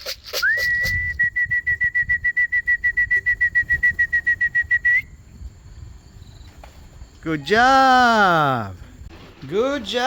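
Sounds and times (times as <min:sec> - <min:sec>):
trilling whistle: 0:00.3 - 0:05.2.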